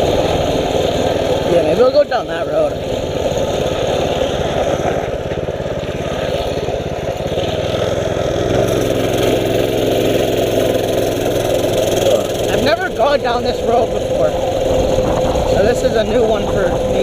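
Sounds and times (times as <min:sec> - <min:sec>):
small engine running: 0:00.0 - 0:17.0
wind noise on microphone: 0:13.5 - 0:17.0.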